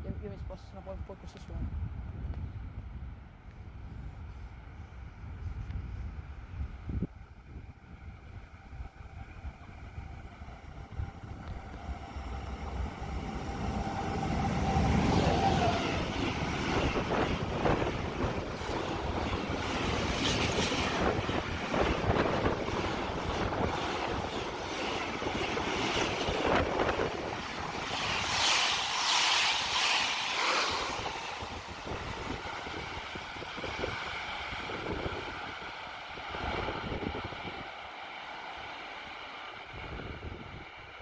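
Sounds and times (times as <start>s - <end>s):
train passing: 0.0s - 41.0s.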